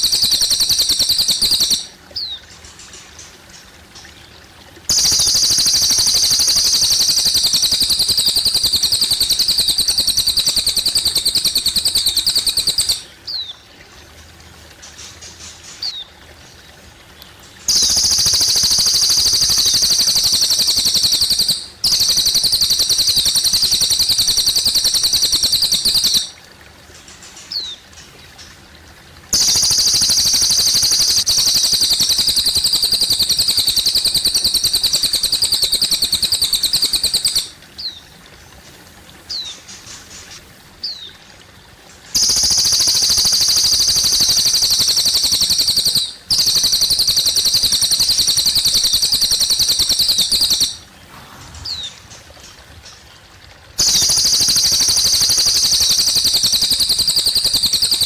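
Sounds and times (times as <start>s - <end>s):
bird chirping trills: 0.0s - 13.6s, 17.4s - 26.4s, 29.4s - 38.1s, 42.2s - 53.2s
water trickling: 0.0s - 58.0s.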